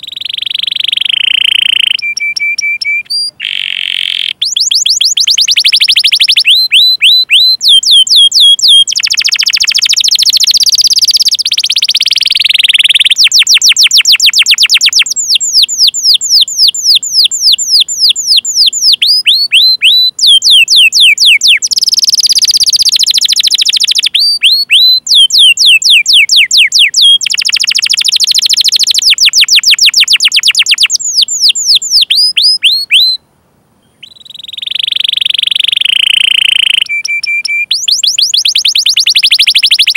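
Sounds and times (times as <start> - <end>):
canary singing: 0.0 - 33.2, 33.8 - 39.9.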